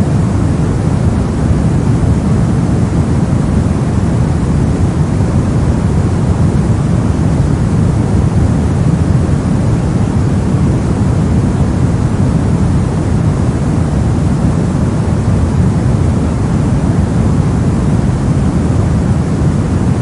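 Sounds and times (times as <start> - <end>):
deep steady rushing noise: 0.0 - 20.0.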